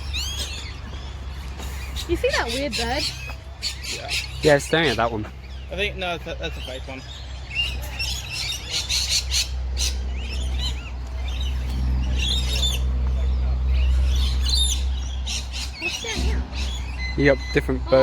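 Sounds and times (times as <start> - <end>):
birds chirping and squawking: 0.0 - 18.0
steady low rumble: 7.1 - 18.0.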